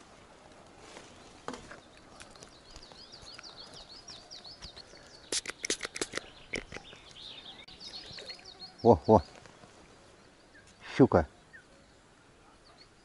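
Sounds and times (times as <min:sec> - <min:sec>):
small bird chirping: 0:01.7 - 0:12.0
hand brushing microphone: 0:05.2 - 0:06.9.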